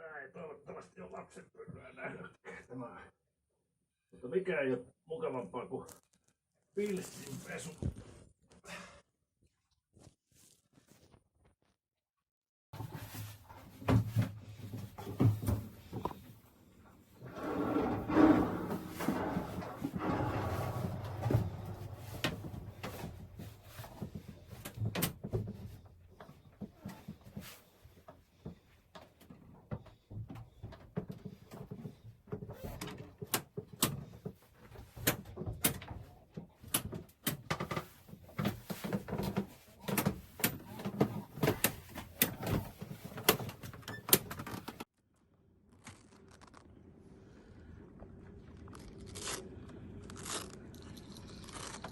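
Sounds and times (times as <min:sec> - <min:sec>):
objects knocking and clattering: 0:17.2 - 0:27.5.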